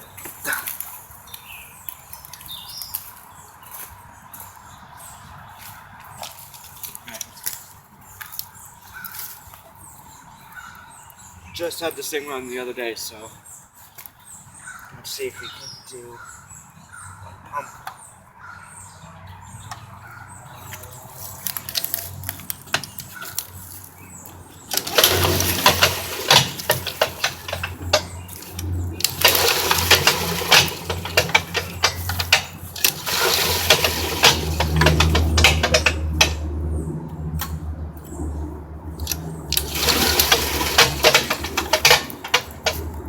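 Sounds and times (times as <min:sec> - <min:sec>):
small engine starting and running rough: 0:24.6 - 0:36.8, 0:38.9 - 0:43.0.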